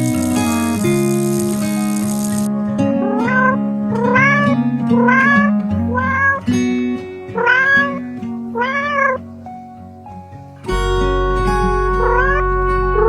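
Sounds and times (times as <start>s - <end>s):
background music with plucked guitar: 0.0s - 13.0s
cat meowing: 3.2s - 6.4s, 7.4s - 9.3s, 12.0s - 12.4s.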